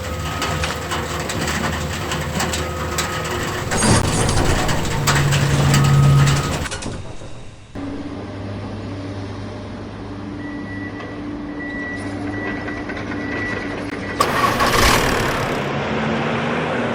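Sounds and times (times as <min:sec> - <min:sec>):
motor drone: 0:14.2 - 0:16.1.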